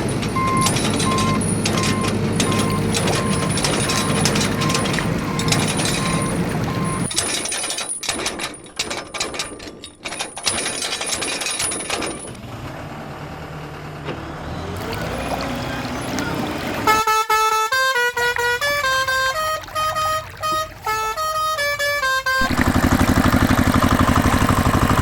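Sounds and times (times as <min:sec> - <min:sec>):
heavy vehicle engine running: 0:00.0 - 0:08.3, 0:09.4 - 0:17.2, 0:18.6 - 0:25.0
rapid clattering and rattling: 0:00.0 - 0:12.4
reversing alarm beeps: 0:00.1 - 0:07.2.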